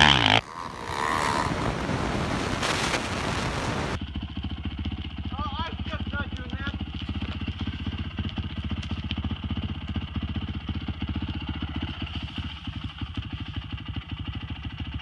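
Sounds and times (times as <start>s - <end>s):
dirt bike engine idling: 4.0s - 15.0s.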